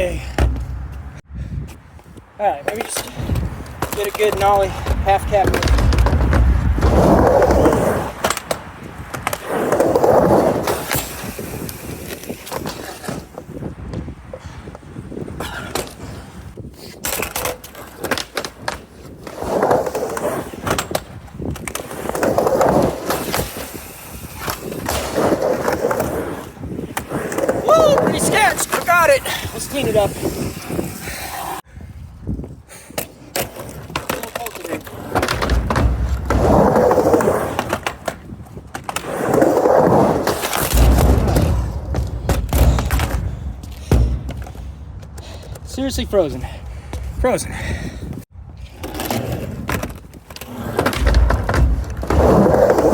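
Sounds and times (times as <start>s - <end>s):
skateboard wheels rolling: 0.0s - 52.9s
skateboard clacks and thuds: 2.6s - 14.4s, 32.9s - 45.6s, 48.8s - 52.9s.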